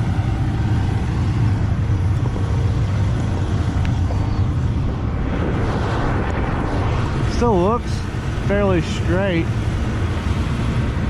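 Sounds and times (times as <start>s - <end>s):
combine harvester running: 0.0s - 6.7s.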